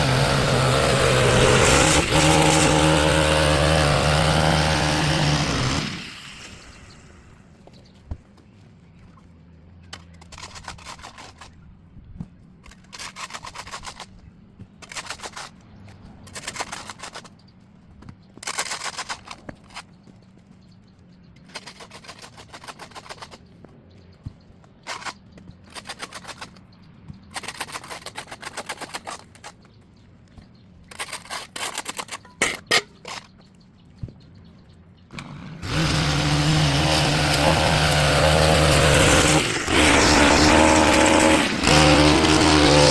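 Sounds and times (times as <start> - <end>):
engine pull-start rasping: 0.0 - 7.4, 35.1 - 42.9
small gas engine running: 0.0 - 7.4, 35.1 - 42.9.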